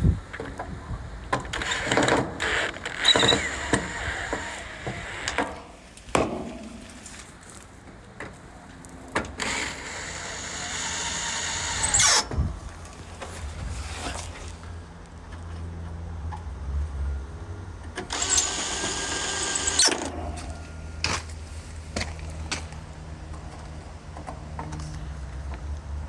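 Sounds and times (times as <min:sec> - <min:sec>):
cordless drill running: 0:01.6 - 0:05.5, 0:09.4 - 0:12.3, 0:18.1 - 0:20.1.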